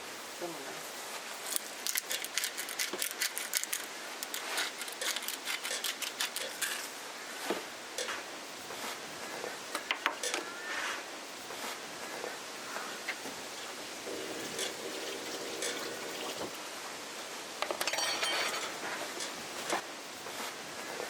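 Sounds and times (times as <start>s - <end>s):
sharp clicks and crackles: 1.5s - 6.7s.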